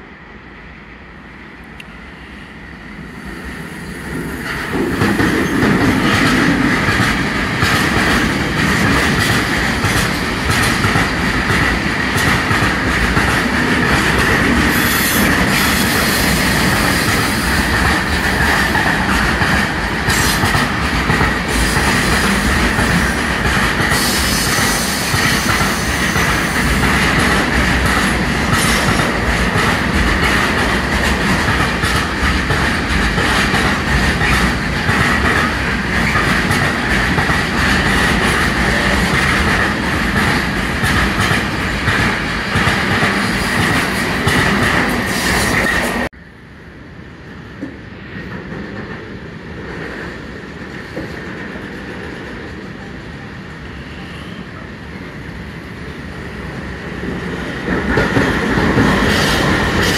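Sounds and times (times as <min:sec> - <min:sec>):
train wheels rumbling: 0:01.6 - 0:46.2, 0:54.8 - 0:59.9.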